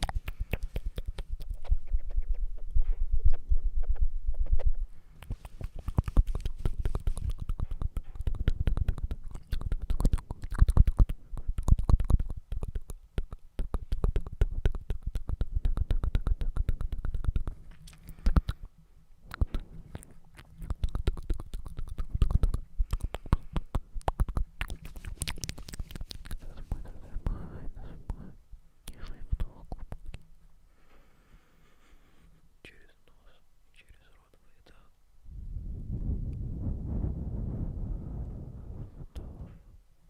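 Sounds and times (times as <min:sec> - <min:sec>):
wet mouth clicks and smacks: 0:00.0 - 0:02.4, 0:03.3 - 0:30.3
low rumble: 0:35.2 - 0:39.8.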